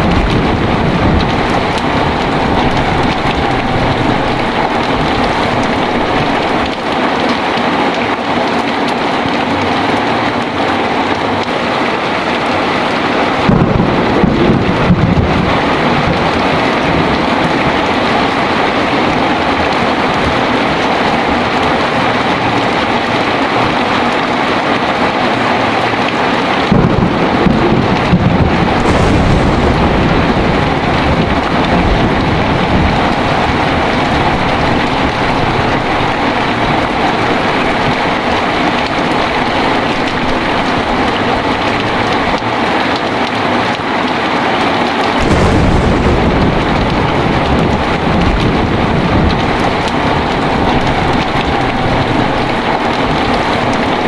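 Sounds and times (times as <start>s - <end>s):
thunder rumbling: 0.0s - 7.8s, 11.7s - 42.9s, 45.2s - 54.0s
heavy rain pouring: 0.0s - 54.0s.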